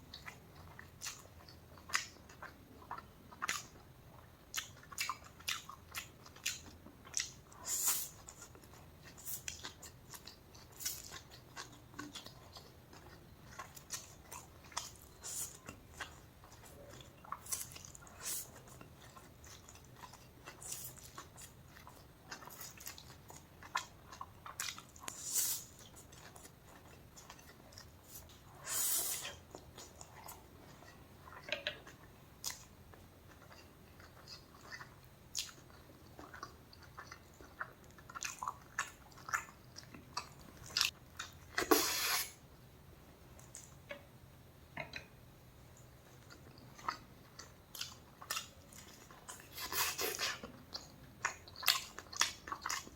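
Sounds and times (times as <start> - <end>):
person chewing and biting: 46.3 - 52.9.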